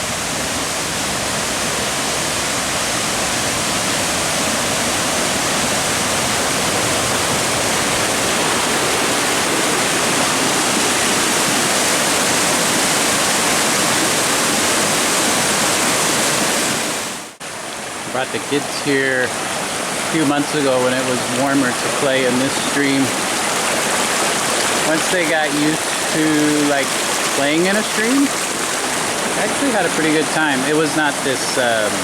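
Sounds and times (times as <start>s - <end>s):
stream water rushing: 0.0s - 32.0s.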